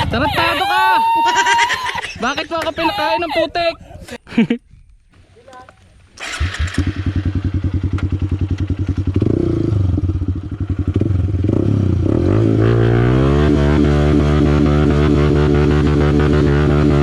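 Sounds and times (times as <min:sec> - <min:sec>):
dirt bike engine revving: 0:06.1 - 0:17.0.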